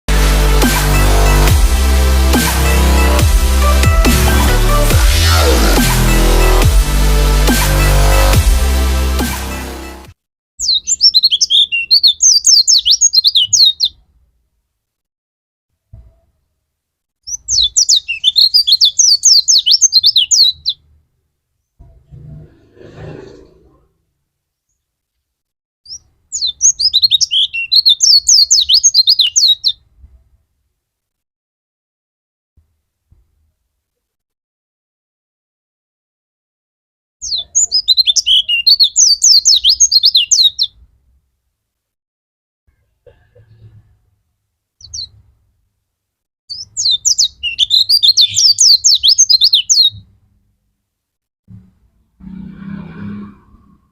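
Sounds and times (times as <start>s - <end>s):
bird twittering song: 10.6s - 14.0s, 17.2s - 20.8s, 25.9s - 29.8s, 37.2s - 40.8s, 44.8s - 45.2s, 46.5s - 50.0s.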